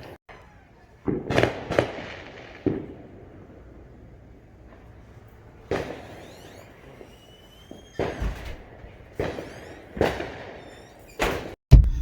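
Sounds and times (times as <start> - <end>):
fireworks bangs: 0.0 - 12.0
faint firework whistles: 4.9 - 8.5, 9.1 - 11.6.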